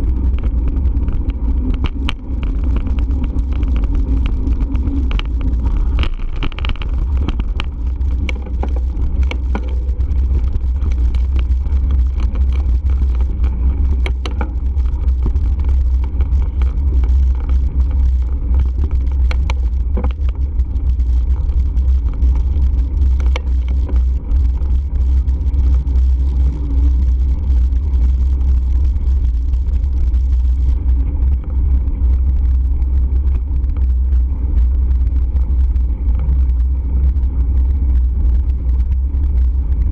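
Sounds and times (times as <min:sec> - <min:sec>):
clicks and rattles: 0:00.2 - 0:26.6.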